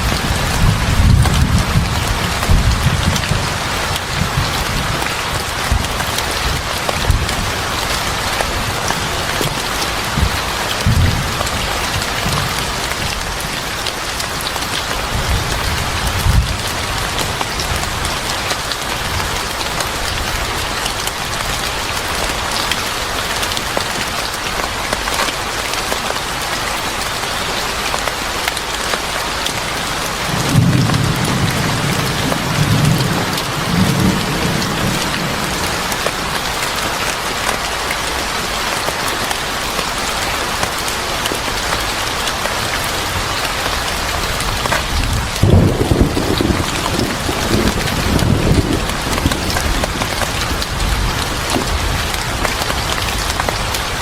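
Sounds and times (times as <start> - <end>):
thunder rumbling: 0.0 - 13.6, 30.3 - 36.5, 43.9 - 54.0
heavy rain: 0.0 - 54.0.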